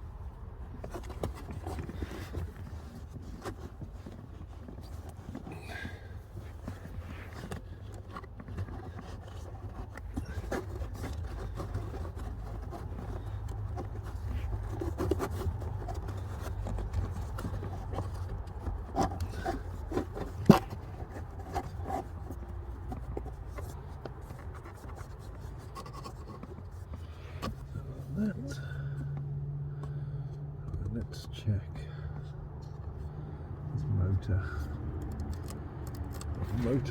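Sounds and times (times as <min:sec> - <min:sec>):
hands scraping plastic trim: 0:00.7 - 0:28.3.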